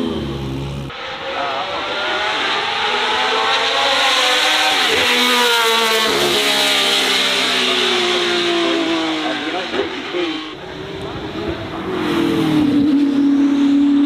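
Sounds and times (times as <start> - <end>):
racing car engine accelerating: 0.0 - 14.0.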